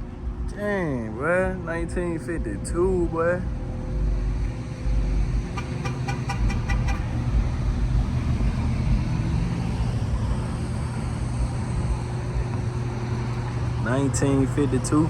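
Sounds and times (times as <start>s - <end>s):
steady low hum: 0.0s - 15.0s
vehicle horn beeping: 5.6s - 7.2s.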